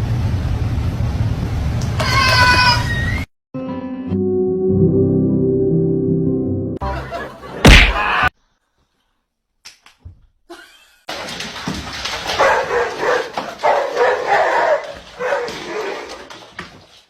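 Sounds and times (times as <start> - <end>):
music: 3.6 - 7.6
loud thump: 7.6 - 8.1
dog barking and yipping: 12.3 - 16.3.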